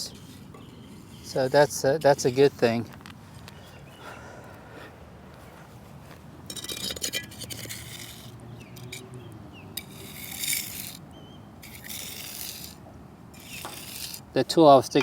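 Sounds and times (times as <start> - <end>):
shovel scraping wet cement: 0.0 - 2.8, 6.5 - 9.0, 9.8 - 11.0, 11.6 - 12.8, 13.4 - 14.3.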